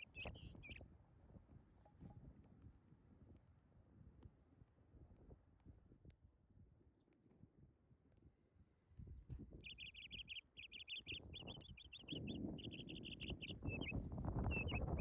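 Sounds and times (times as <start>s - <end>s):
small bird trilled chirps: 0.0s - 0.8s, 9.6s - 15.0s.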